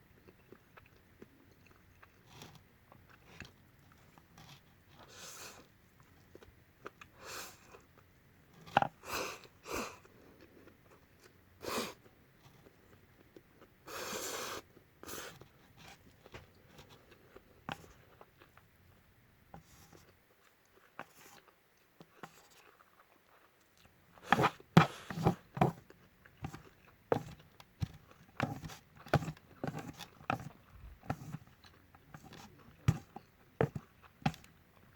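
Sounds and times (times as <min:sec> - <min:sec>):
wet chewing and mouth noises: 0:00.1 - 0:08.8.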